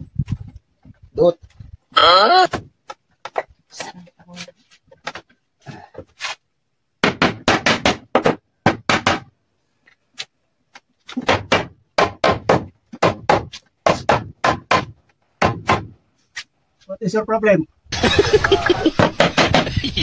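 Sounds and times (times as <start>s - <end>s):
hammer striking wooden door: 7.0s - 9.3s, 11.2s - 15.9s.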